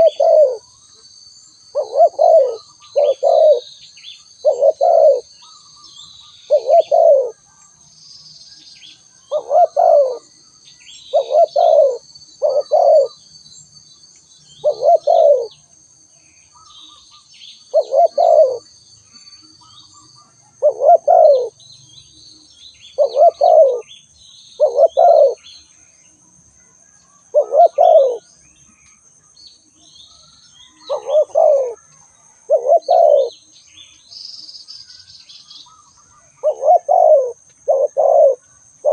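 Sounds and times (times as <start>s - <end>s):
dove cooing: 0.0s - 0.6s, 1.7s - 3.7s, 4.4s - 5.3s, 6.3s - 7.4s, 9.3s - 10.3s, 11.1s - 13.2s, 14.6s - 15.6s, 17.7s - 18.7s, 20.5s - 21.6s, 23.0s - 23.9s, 24.6s - 25.5s, 27.3s - 28.3s, 30.7s - 33.4s, 35.7s - 38.9s
small birds chirping: 0.0s - 38.9s.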